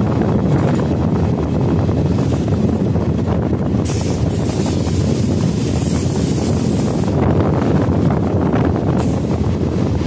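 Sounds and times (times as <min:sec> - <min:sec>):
train wheels rumbling on rails: 0:00.0 - 0:10.0
wind buffeting microphone: 0:00.0 - 0:10.0.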